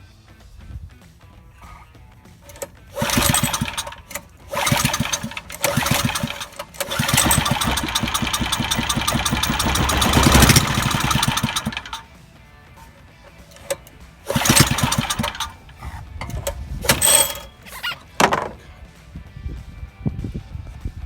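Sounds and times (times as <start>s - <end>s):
small engine running: 2.4s - 12.1s, 12.8s - 18.6s.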